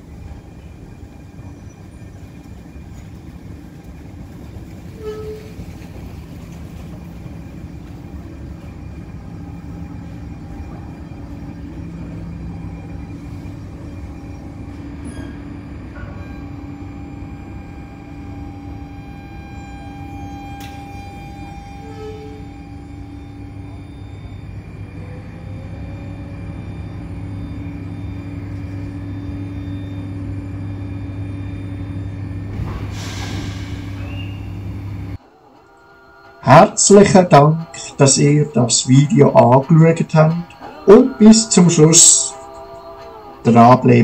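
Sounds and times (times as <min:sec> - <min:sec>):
train rumbling on rails: 0:00.0 - 0:44.0
brief high squeal: 0:04.9 - 0:05.9, 0:15.0 - 0:17.3, 0:18.0 - 0:38.6.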